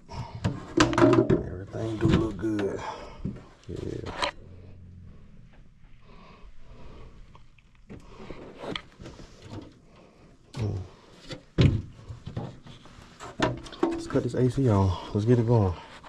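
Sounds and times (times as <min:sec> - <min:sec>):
equipment knocks and bumps: 0:00.4 - 0:03.4
faint low hum: 0:01.4 - 0:08.8.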